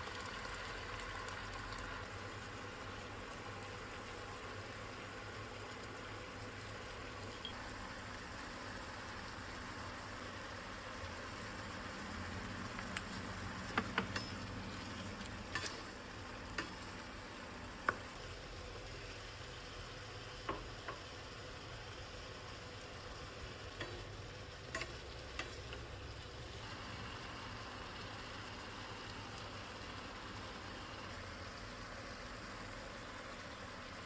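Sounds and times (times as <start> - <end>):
vegetables sizzling in a pan: 0.0 - 34.0
utensil clicking against pan: 15.5 - 15.9, 24.7 - 25.9.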